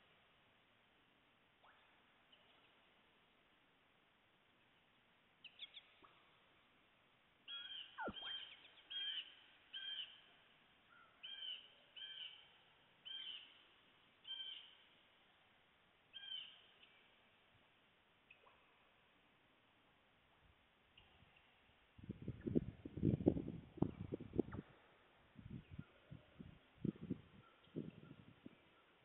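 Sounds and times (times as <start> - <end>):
faint background hiss: 0.0 - 29.0
bird calling: 7.5 - 10.2.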